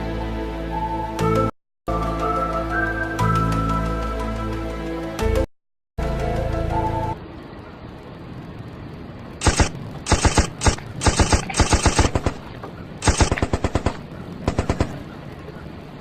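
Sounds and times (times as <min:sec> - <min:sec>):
rapid sharp cracks: 0:09.4 - 0:15.1.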